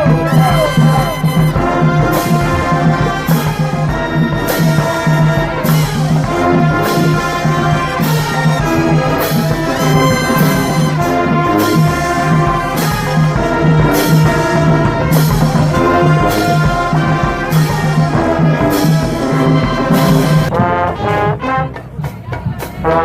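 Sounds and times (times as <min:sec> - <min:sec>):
sousaphone bass line: 0:00.0 - 0:07.9
brass chords: 0:00.0 - 0:23.0
cymbal crashes: 0:01.0 - 0:06.1.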